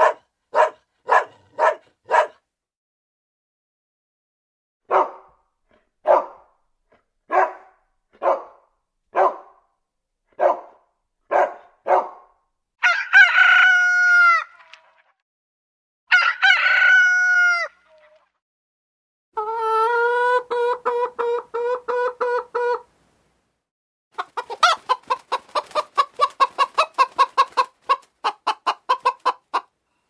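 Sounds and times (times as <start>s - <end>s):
dog barking: 0.0s - 2.5s, 4.8s - 5.4s, 6.0s - 6.5s, 7.3s - 9.7s, 10.3s - 12.4s
rooster crowing: 12.8s - 14.5s, 16.1s - 17.8s.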